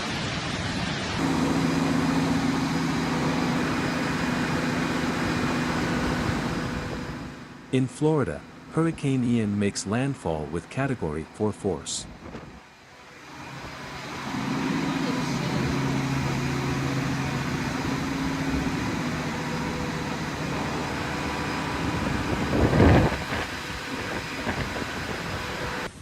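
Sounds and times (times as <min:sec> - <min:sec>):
hurricane wind and rain roaring: 0:00.0 - 0:26.0
low steady hum: 0:01.0 - 0:26.0.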